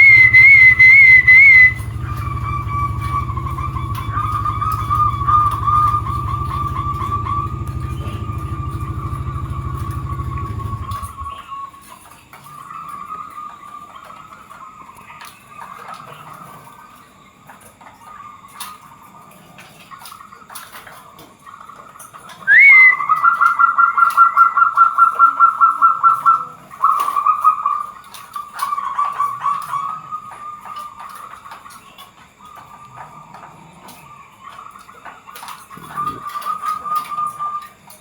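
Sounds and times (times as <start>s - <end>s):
doves cooing: 0.0s - 11.8s, 22.4s - 38.0s.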